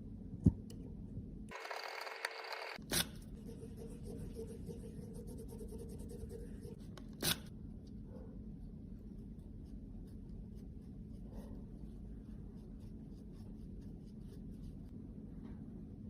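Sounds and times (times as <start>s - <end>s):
small tool scratching makeup: 2.8s - 7.5s.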